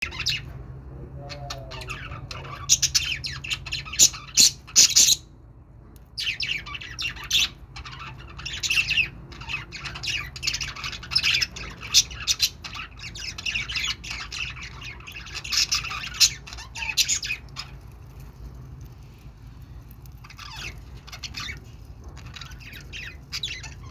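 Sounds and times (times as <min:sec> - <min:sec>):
budgerigars chattering: 0:01.2 - 0:05.2, 0:06.2 - 0:17.8, 0:20.2 - 0:23.9.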